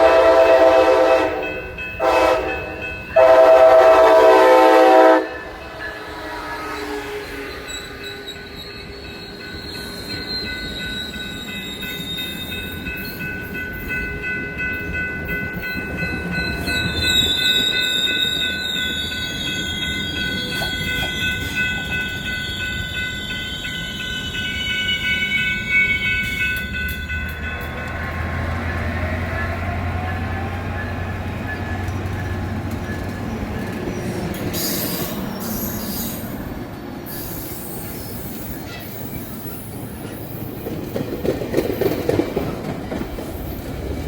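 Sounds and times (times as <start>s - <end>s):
train wheels rumbling on rail: 0.0s - 44.0s
metallic wheel squeal: 7.2s - 13.2s, 16.5s - 25.1s, 33.9s - 36.4s, 37.1s - 40.4s.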